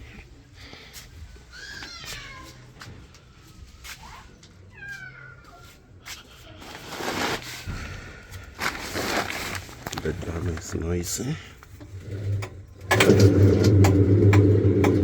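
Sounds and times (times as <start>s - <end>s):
cat meowing: 1.5s - 2.6s, 4.7s - 5.8s.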